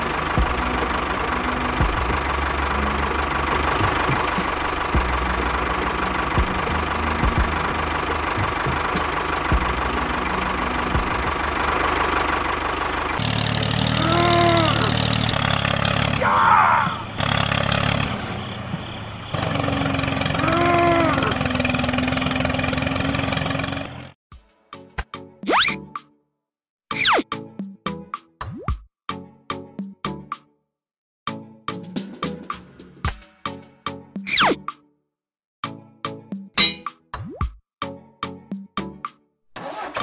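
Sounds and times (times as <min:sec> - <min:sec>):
tractor engine running: 0:00.0 - 0:24.2.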